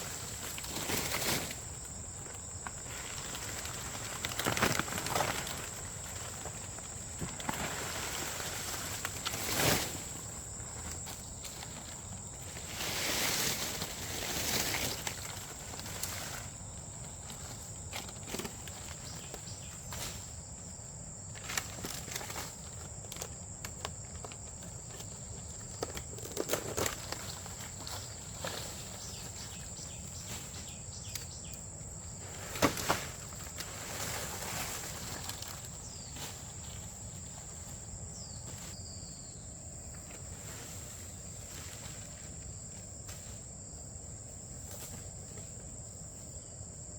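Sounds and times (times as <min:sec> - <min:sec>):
rustling: 0:00.0 - 0:20.4, 0:32.2 - 0:39.2
insects droning: 0:00.0 - 0:46.9.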